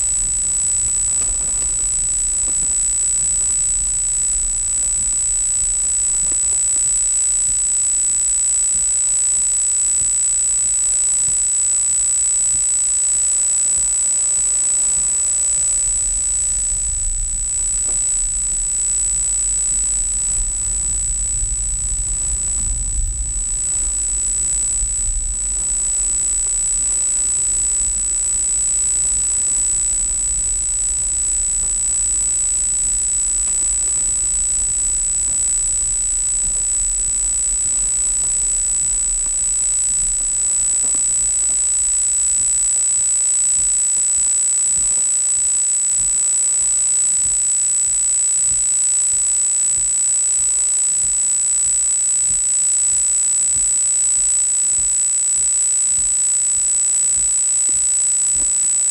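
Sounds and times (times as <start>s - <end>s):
high-pitched electronic whine: 0.0s - 58.9s.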